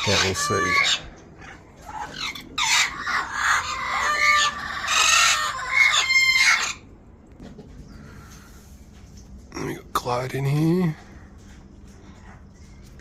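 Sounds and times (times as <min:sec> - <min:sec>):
parrots squawking: 0:00.0 - 0:06.9.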